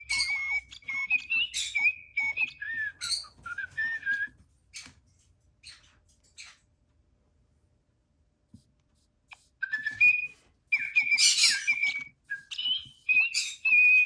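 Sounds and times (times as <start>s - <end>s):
toy bird whistling and chirping: 0.0s - 4.9s, 9.6s - 14.0s.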